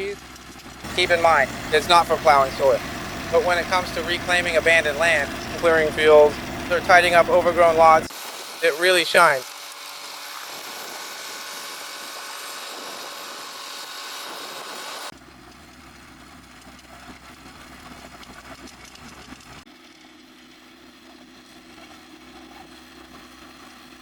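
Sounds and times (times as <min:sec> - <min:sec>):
skid steer loader engine: 0:00.0 - 0:08.1.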